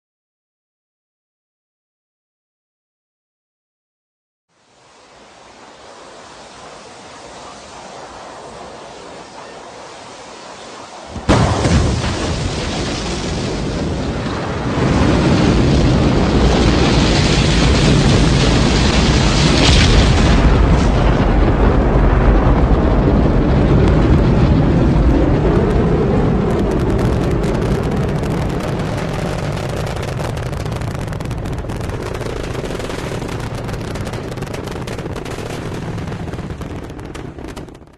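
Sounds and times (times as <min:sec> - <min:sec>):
rocket engines rumbling and crackling: 0:04.6 - 0:37.9.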